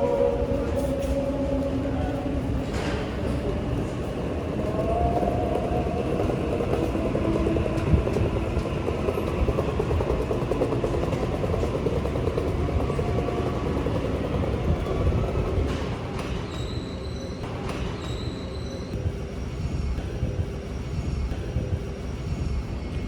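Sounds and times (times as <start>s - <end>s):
electric train rumbling on track: 0.0s - 23.0s
train wheels squealing: 9.2s - 19.0s.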